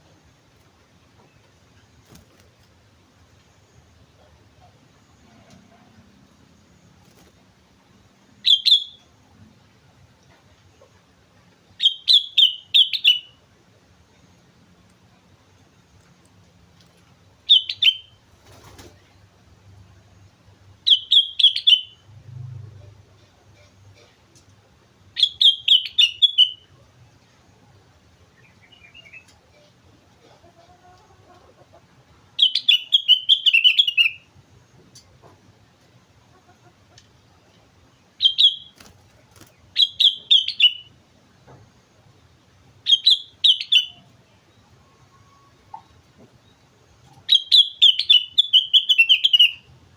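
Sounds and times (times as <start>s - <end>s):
bulbul whistling: 38.2s - 38.8s, 39.8s - 40.9s, 47.3s - 49.7s.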